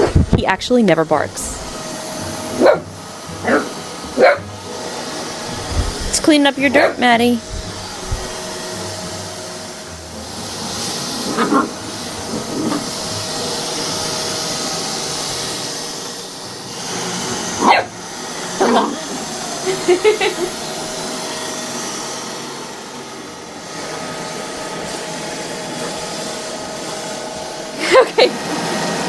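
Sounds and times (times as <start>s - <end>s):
robot vacuum whirring: 0.0s - 29.0s
dog barking: 2.6s - 2.8s, 3.5s - 4.4s, 17.6s - 17.9s
dog yapping: 2.6s - 2.8s, 3.4s - 4.4s, 11.3s - 11.7s, 17.6s - 17.9s.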